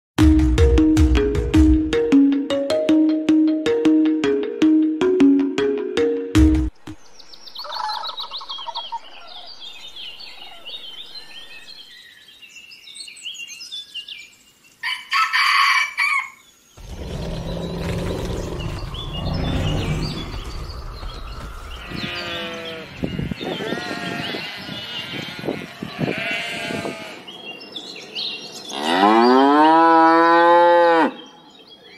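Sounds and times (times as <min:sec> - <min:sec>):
bird chirps: 0:06.8 - 0:14.8, 0:16.5 - 0:25.1
rooster crowing: 0:14.8 - 0:16.4
cranes calling: 0:16.8 - 0:25.3
low animal calls: 0:16.8 - 0:27.1.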